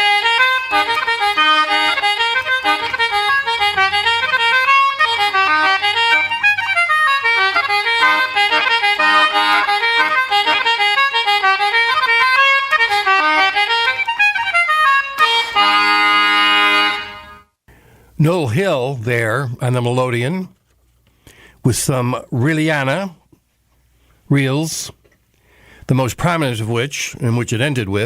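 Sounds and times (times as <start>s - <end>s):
concertina and accordion reels: 0.0s - 17.6s.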